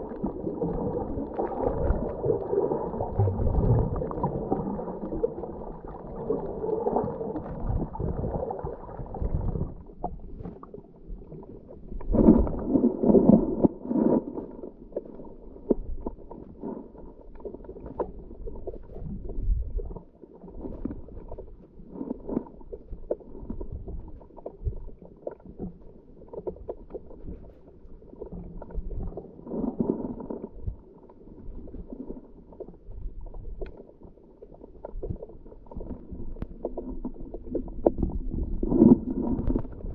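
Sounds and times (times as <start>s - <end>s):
underwater breath bubbling: 0.0s - 10.7s, 35.8s - 39.9s
faint crackles: 0.0s - 39.9s.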